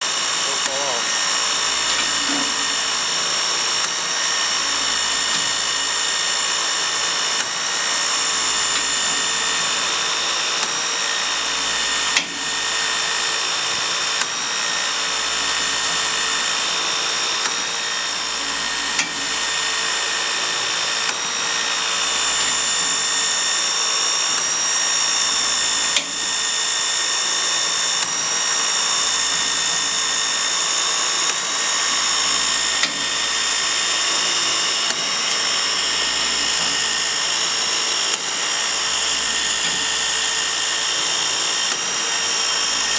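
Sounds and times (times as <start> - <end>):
engine mechanism whining: 0.0 - 42.9
sharp mechanical tick: 1.5 - 2.8, 12.0 - 12.5, 18.3 - 19.4, 25.2 - 26.4, 31.1 - 35.1.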